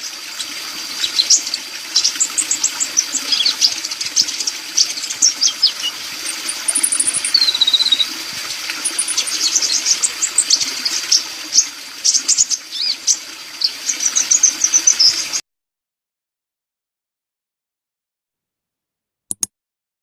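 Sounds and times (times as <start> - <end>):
bird singing high chirps: 2.0 - 8.1, 8.8 - 15.3.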